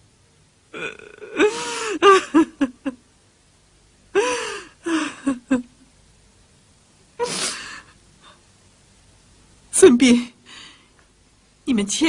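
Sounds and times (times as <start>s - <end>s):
person sobbing: 0.8s - 3.0s, 4.1s - 5.8s.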